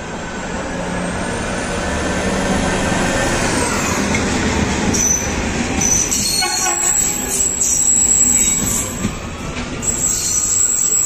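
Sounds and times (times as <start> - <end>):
diesel locomotive engine droning: 0.0 - 11.0
coaches rolling over rails: 0.5 - 11.0
high-pitched wheel squeals: 4.9 - 9.1, 9.8 - 11.0.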